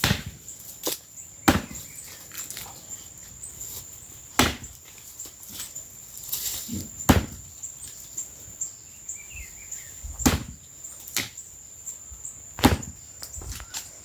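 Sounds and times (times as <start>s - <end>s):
axe chopping into dry wood: 0.0s - 2.5s, 4.4s - 5.0s, 6.7s - 7.5s, 10.2s - 11.4s, 12.6s - 13.0s.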